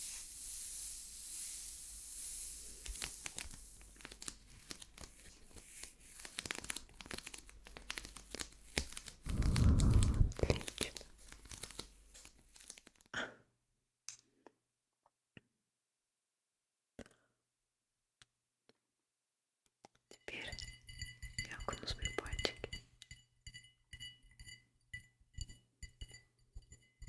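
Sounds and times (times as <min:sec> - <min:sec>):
steady hiss: 0:00.0 - 0:04.4
close-up crinkling and crackling: 0:02.8 - 0:13.1
muffled rub: 0:09.2 - 0:10.6.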